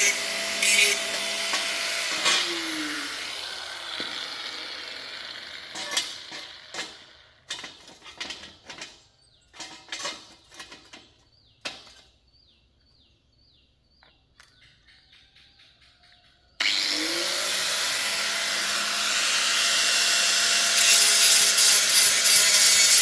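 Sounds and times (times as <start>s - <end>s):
noisy tool: 0.0s - 9.0s, 16.6s - 23.0s.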